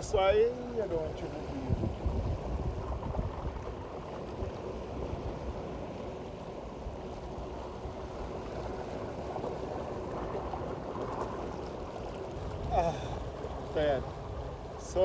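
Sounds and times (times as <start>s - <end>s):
moving water rushing: 0.0s - 15.0s
wind: 0.0s - 15.0s.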